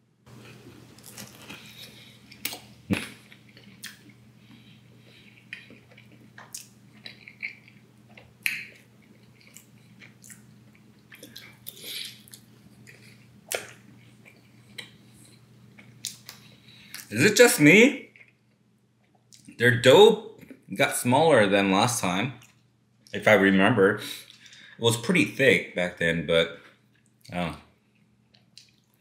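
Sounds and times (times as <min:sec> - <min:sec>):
faint low hum: 0:00.0 - 0:29.0
person chewing pizza: 0:00.3 - 0:17.1, 0:18.0 - 0:19.6, 0:26.8 - 0:29.0.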